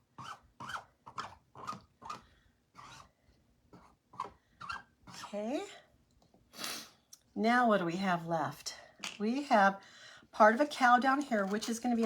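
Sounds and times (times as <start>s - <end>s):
squeegee scraping over a stencil: 0.2s - 3.1s.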